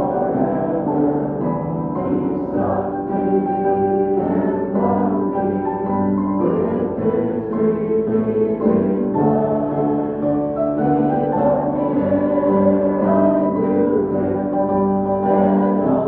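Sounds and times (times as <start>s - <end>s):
keyboard playing slow chords: 0.0s - 16.0s.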